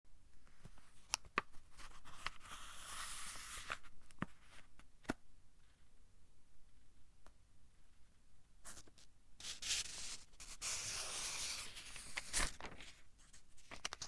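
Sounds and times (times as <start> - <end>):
book pages rustling: 10.6 - 14.0
pages snapping and flicking: 10.8 - 13.0, 13.6 - 14.0.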